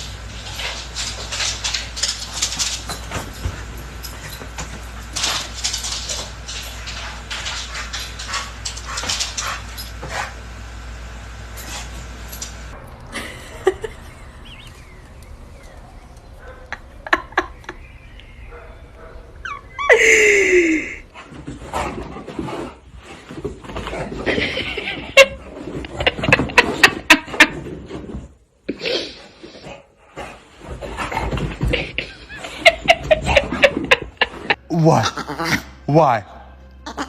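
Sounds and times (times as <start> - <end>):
dog crying: 19.3 - 20.8.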